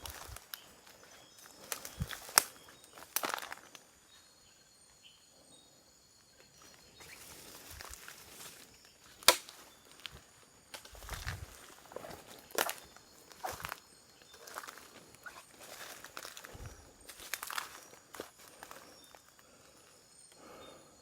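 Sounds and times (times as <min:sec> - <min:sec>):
footsteps through undergrowth: 0:00.0 - 0:03.7, 0:06.6 - 0:19.3.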